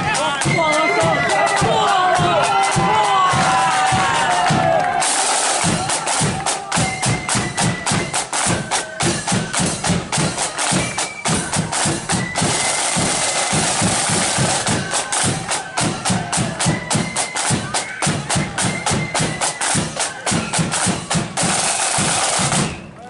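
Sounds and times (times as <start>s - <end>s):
bass drum beating: 0.0s - 5.0s
snare drum march rhythm: 0.0s - 23.0s
faint flute notes: 6.6s - 9.8s, 14.4s - 21.1s.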